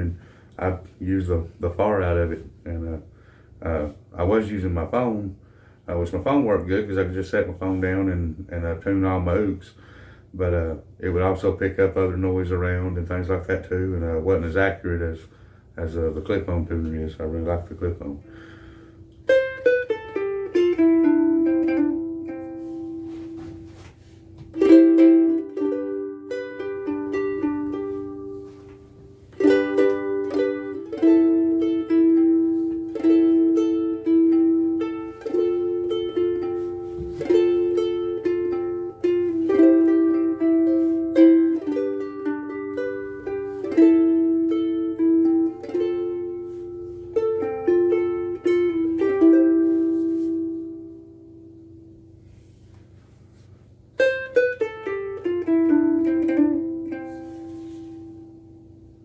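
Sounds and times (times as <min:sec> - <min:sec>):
picked ukulele melody: 0:16.3 - 0:59.0
ukulele chords ringing: 0:17.3 - 0:52.6, 0:53.3 - 0:59.0.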